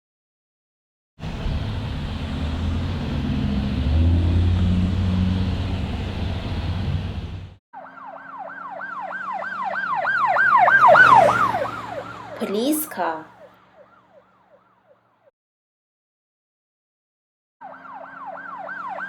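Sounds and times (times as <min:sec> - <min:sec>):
truck engine rumbling: 0:01.2 - 0:07.6
emergency siren wailing: 0:01.2 - 0:14.6, 0:17.6 - 0:19.0.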